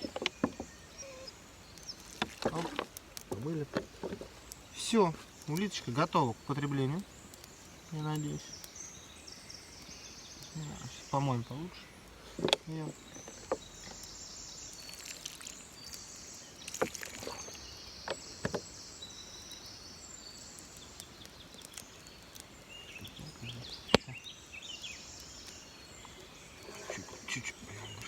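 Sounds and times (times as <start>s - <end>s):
handling clicks and knocks: 0.0s - 0.8s, 2.1s - 4.3s
faint water sloshing: 14.7s - 16.0s, 16.6s - 18.2s.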